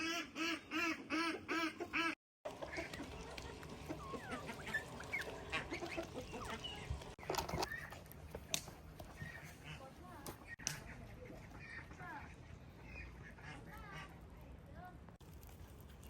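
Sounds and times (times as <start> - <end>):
duck quacks: 0.0 - 6.8
birds chirping and clucking: 0.0 - 14.3.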